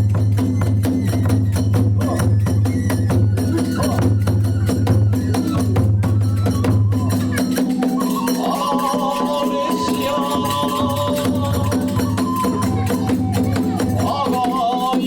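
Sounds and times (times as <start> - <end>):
drums: 0.0 - 15.0
hand cymbals striking: 0.0 - 15.0
high wavering melody: 3.4 - 15.0.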